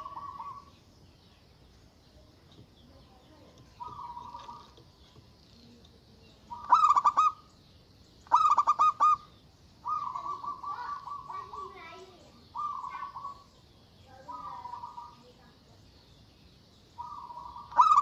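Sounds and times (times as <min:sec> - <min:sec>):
dove cooing: 0:00.0 - 0:00.8, 0:03.5 - 0:05.1, 0:06.3 - 0:07.5, 0:08.2 - 0:15.6, 0:17.0 - 0:18.0
small birds twittering: 0:00.0 - 0:18.0.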